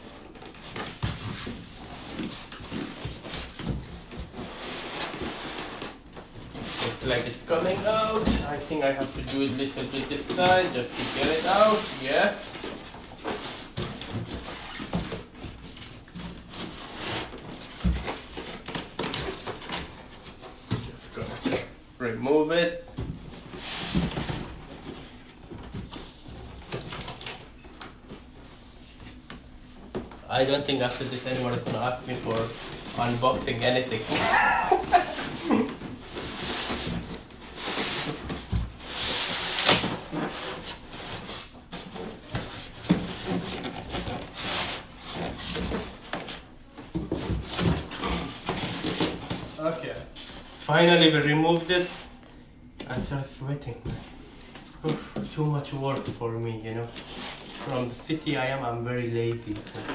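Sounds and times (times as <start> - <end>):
packaging scraping and rubbing: 0.3 - 21.4, 30.4 - 46.5, 56.6 - 58.2.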